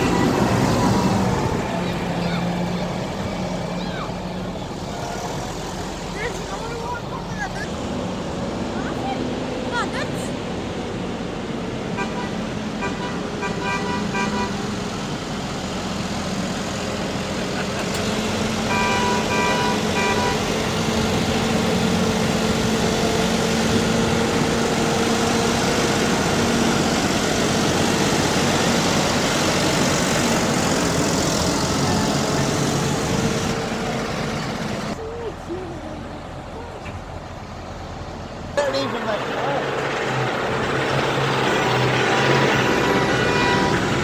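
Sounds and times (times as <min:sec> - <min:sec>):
heavy vehicle engine passing: 0:00.0 - 0:44.0
vehicle horn: 0:12.0 - 0:14.8, 0:18.6 - 0:20.9, 0:42.7 - 0:44.0.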